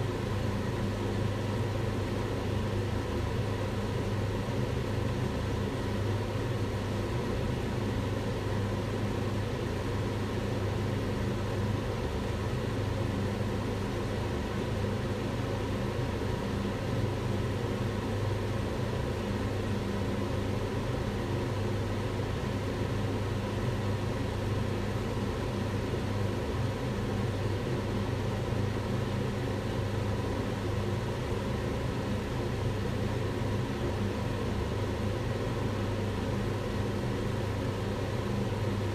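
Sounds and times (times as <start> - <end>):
range hood fan running: 0.0 - 38.9.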